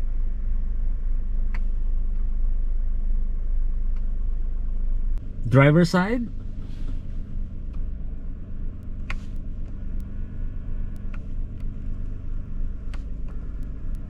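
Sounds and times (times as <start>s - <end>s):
car engine humming: 0.0s - 14.0s
power mirror motor whine: 6.3s - 14.0s.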